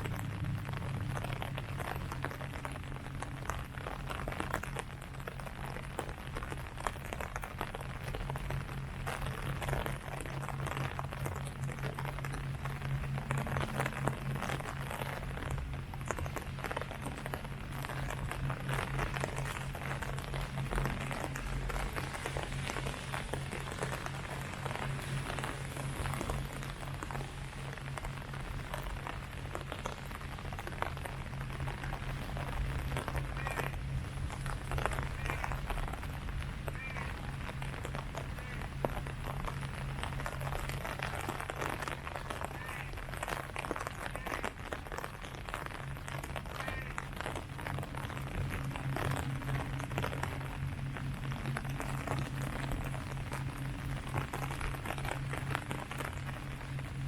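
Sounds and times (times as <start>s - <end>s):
low hum: 0.0s - 57.0s
rain pattering on leaves: 0.0s - 57.0s.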